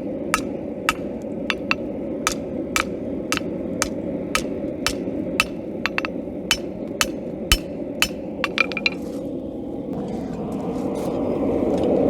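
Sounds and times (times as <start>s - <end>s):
hammer striking steel on anvil: 0.4s - 9.0s
light hammer taps: 0.4s - 9.0s.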